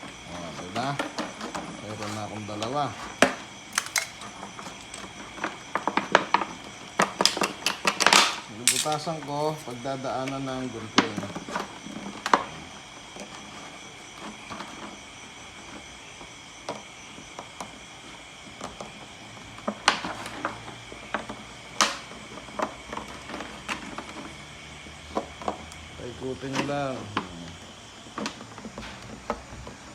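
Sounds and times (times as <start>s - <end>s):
plastic bottle clicks and crackles: 3.2s - 5.1s, 7.1s - 9.8s
plastic snapping: 3.2s - 5.1s, 7.0s - 9.8s.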